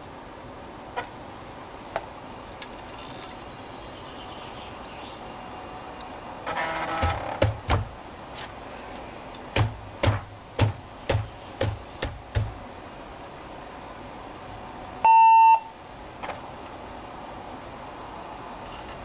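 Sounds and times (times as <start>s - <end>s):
laptop power-on beep: 15.0s - 15.7s.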